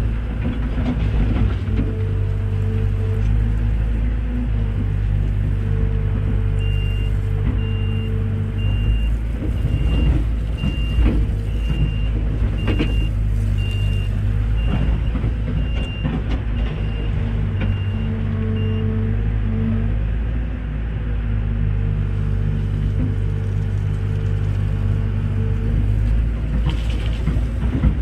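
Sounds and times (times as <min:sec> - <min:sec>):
heavy diesel machinery running: 0:00.0 - 0:28.0
reversing alarm beeping: 0:06.6 - 0:18.9.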